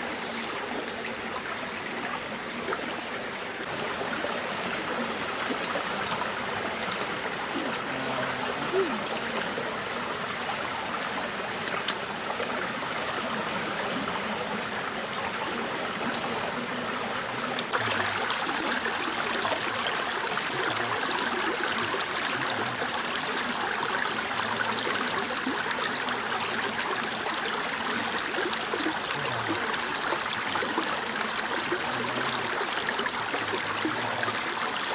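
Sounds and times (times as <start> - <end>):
stream flowing over rocks: 0.0 - 34.9.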